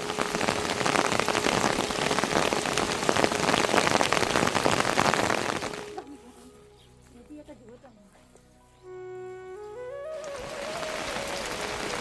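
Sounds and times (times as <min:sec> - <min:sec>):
heavy rain on hard surface: 0:00.0 - 0:06.0, 0:10.1 - 0:12.0.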